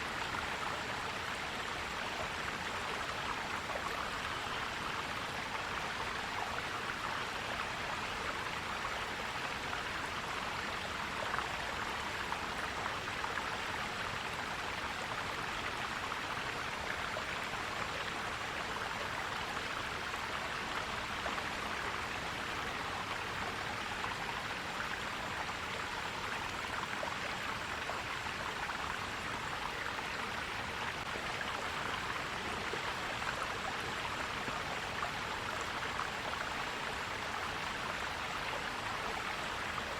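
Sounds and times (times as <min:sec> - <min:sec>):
stream gurgling over stones: 0:00.0 - 0:39.9.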